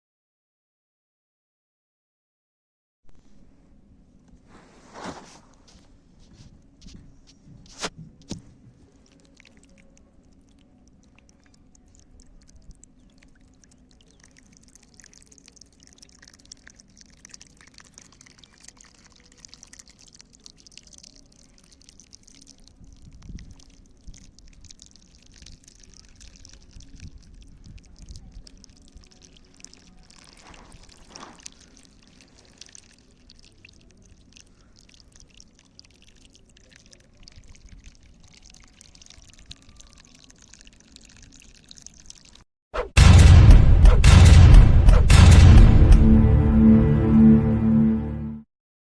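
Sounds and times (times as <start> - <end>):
water splashes and drips: 4.6 - 42.5
water pouring and trickling: 4.8 - 42.5.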